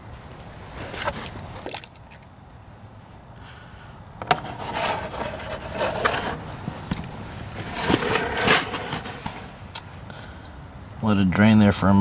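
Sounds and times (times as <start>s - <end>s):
knocks and scrapes: 0.8s - 1.4s, 4.2s - 9.6s.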